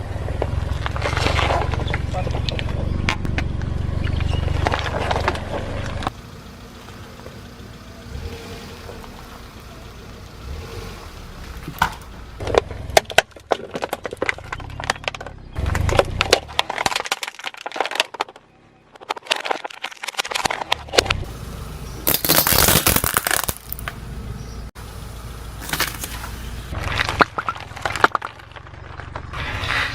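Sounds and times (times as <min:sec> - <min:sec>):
tyre crushing brittle objects: 0:00.4 - 0:03.3, 0:11.4 - 0:21.3, 0:22.0 - 0:24.0, 0:25.6 - 0:29.9.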